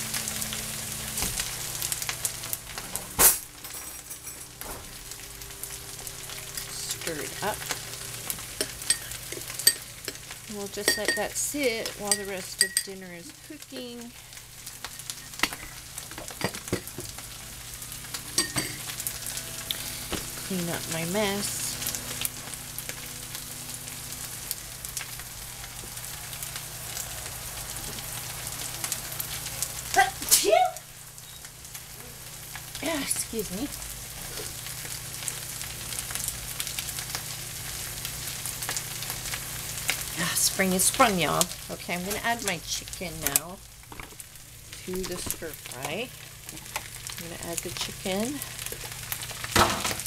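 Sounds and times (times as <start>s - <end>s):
food sizzling in a pan: 0.0s - 50.0s
utensils clinking on dishes: 3.2s - 4.7s, 6.5s - 7.0s, 8.6s - 13.0s, 18.3s - 19.0s.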